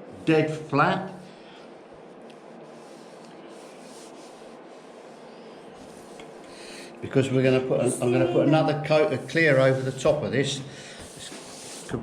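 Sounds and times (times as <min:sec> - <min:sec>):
sandpaper rubbing: 0:08.9 - 0:10.2, 0:11.0 - 0:12.0.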